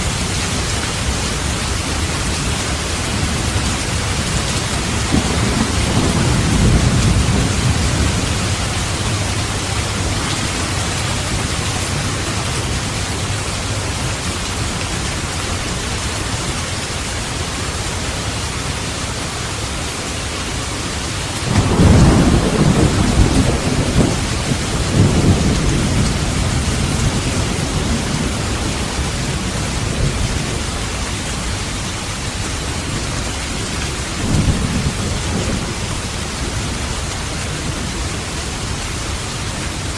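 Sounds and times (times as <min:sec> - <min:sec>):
heavy rain: 0:00.0 - 0:39.9
rolling thunder: 0:01.6 - 0:14.7, 0:21.4 - 0:31.2, 0:34.0 - 0:37.1.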